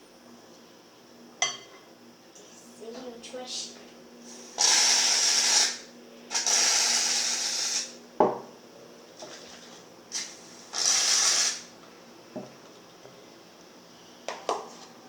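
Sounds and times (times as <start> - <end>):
aerosol can spraying: 4.6 - 7.9, 10.2 - 11.7.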